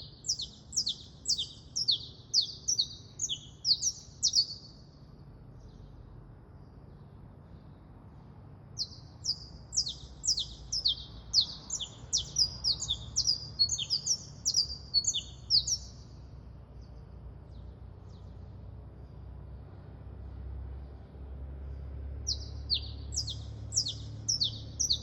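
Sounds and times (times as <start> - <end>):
songbird whistling: 0.0 - 4.8, 8.8 - 16.0, 22.3 - 25.0.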